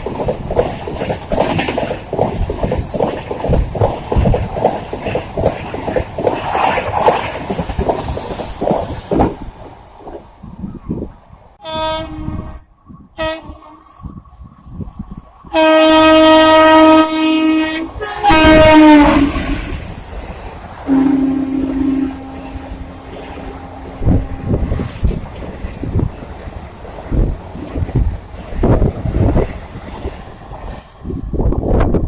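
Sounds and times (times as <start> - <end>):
train wheels clattering: 0.0 - 10.2
locomotive horn blasts: 11.6 - 12.6, 13.2 - 13.8, 15.6 - 19.6, 20.9 - 24.8.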